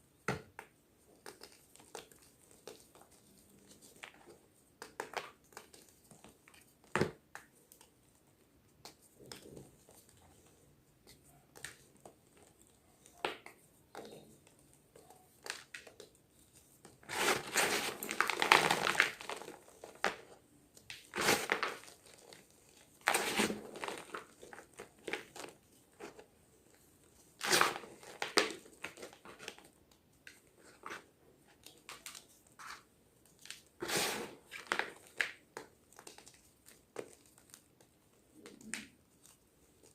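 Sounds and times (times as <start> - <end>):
chalk crunching: 16.5 - 20.3, 33.5 - 35.4.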